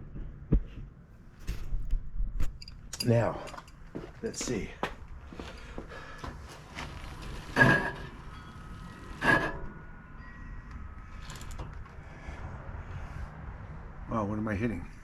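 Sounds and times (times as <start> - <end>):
brake rotor scraping metallically: 5.3 - 12.0.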